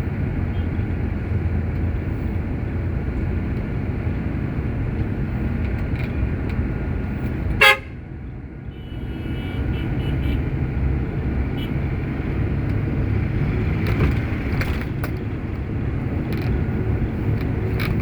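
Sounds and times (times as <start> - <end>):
truck engine running: 0.0 - 18.0
truck horn toot: 7.6 - 8.0, 8.7 - 10.6, 11.5 - 11.9.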